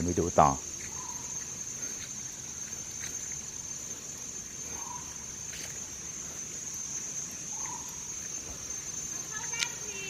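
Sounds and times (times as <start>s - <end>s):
high-pitched insect drone: 0.0s - 10.0s
faint animal calls: 0.8s - 2.8s, 3.9s - 5.5s, 7.3s - 8.4s.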